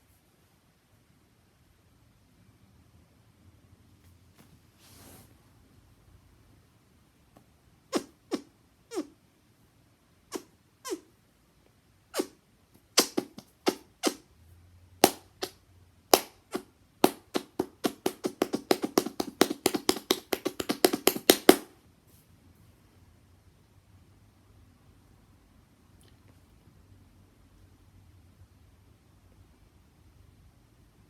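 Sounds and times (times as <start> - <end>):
cupped hands popping: 12.9 - 14.2, 15.0 - 21.7.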